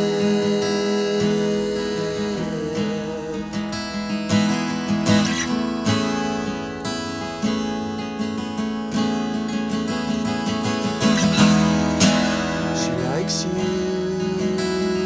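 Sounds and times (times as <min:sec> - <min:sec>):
person singing with vibrato: 0:00.0 - 0:04.0, 0:11.3 - 0:15.0
acoustic guitar strumming chords: 0:00.0 - 0:15.0.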